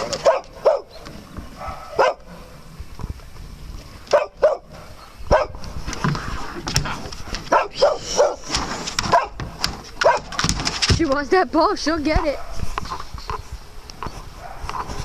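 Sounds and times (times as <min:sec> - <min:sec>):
dog barking: 0:00.1 - 0:01.0, 0:01.6 - 0:02.3, 0:04.1 - 0:05.6, 0:07.5 - 0:09.4, 0:10.0 - 0:10.4, 0:14.4 - 0:14.8.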